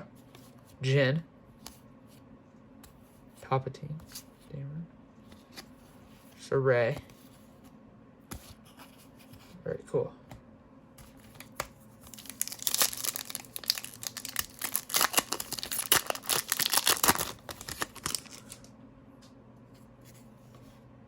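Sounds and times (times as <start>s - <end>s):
foil wrapper crinkling: 12.1s - 18.7s.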